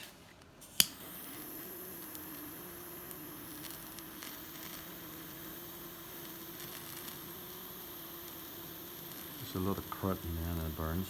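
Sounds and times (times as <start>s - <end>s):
jet-flame lighter hissing: 0.0s - 11.0s.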